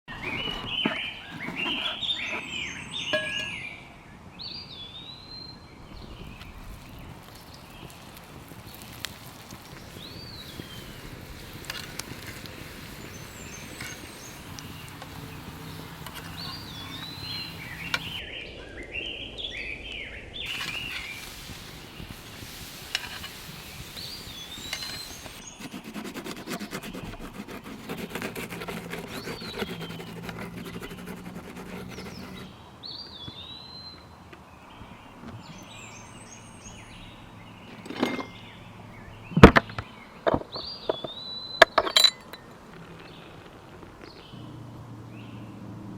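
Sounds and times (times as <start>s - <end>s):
birds chirping: 0.1s - 45.6s
outdoor background hiss: 0.2s - 45.9s
sharp knocks and clinks: 3.0s - 3.7s, 37.8s - 38.5s, 40.3s - 42.6s.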